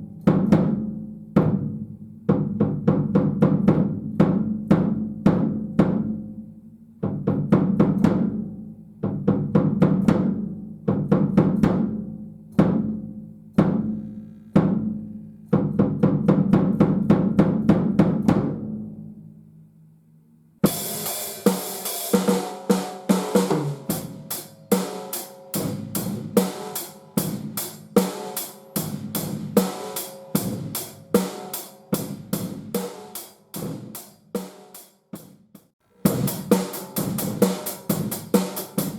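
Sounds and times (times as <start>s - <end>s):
drum kit groove: 0.0s - 6.4s, 7.0s - 18.9s, 20.6s - 38.9s
drums struck ringing: 20.6s - 34.6s, 36.0s - 38.9s.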